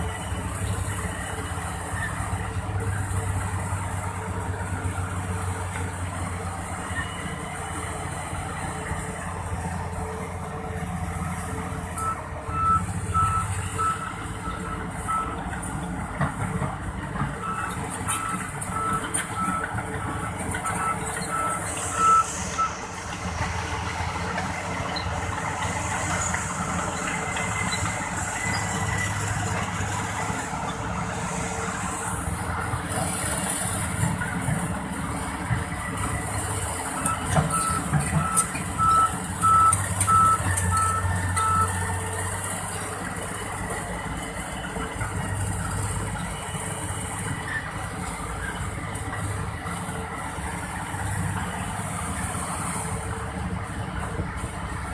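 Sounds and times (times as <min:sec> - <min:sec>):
heavy diesel machinery running: 0:00.0 - 0:54.9
reversing alarm beeping: 0:12.0 - 0:15.4, 0:20.7 - 0:22.8, 0:37.0 - 0:41.8.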